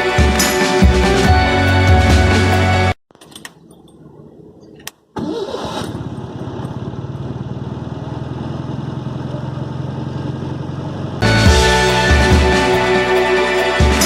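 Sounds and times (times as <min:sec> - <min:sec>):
car engine starting and idling: 0:04.8 - 0:12.1.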